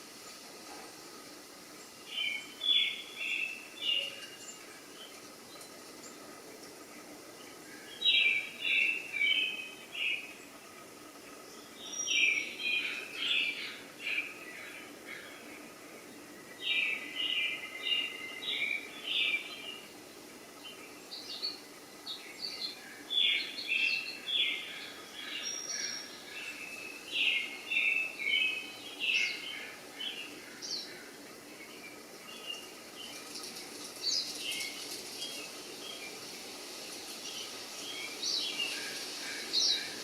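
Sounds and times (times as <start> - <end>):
steady hiss: 0.0 - 40.0.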